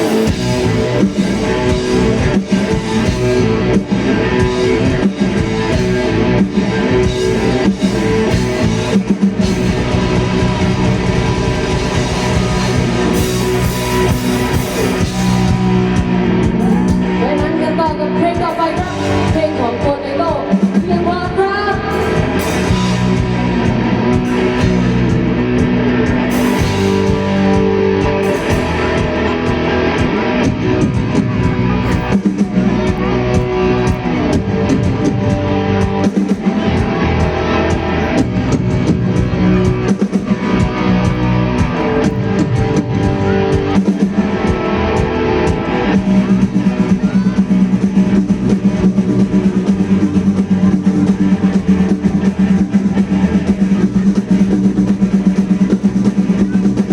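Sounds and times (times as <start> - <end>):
electric guitar: 0.0 - 56.9
live rock band playing: 0.0 - 56.9.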